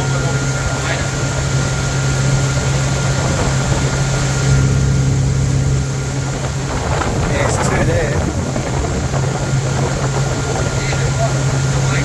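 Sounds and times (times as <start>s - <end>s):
hiss of water and wind: 0.0s - 12.0s
motorboat engine hum: 0.0s - 12.0s.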